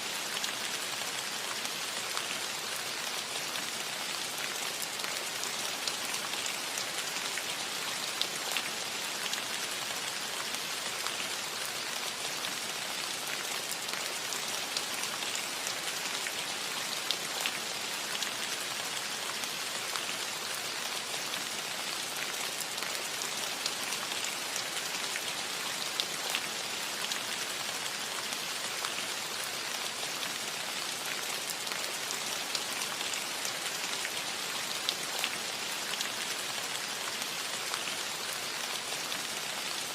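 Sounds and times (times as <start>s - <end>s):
light rain on a metal roof: 0.0s - 39.9s.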